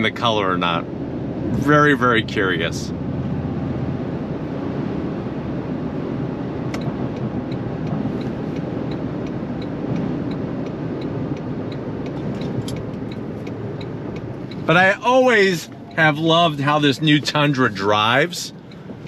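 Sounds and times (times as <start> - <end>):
road and engine noise in cab: 0.0 - 19.0
click: 6.7 - 6.9
faint even ticking: 6.8 - 19.0.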